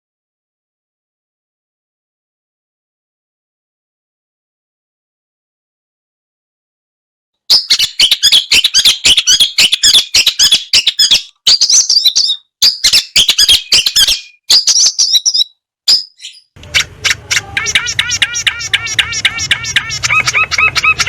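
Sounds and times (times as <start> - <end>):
shrike harsh chattering song: 16.2 - 21.0.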